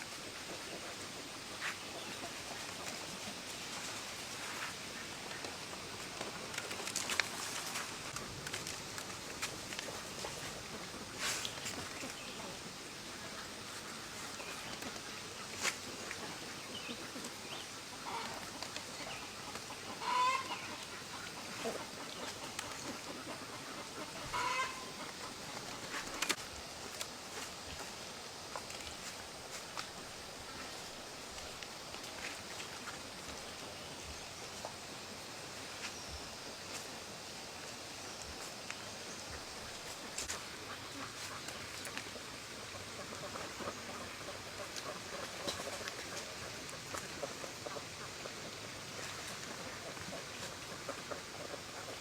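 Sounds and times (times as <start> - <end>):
outdoor background noise: 0.0 - 52.0
poultry calling: 17.9 - 26.4.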